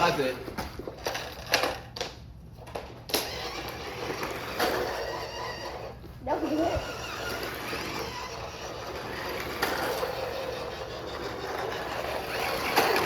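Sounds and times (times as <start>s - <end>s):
toy car motors humming: 2.7s - 13.0s.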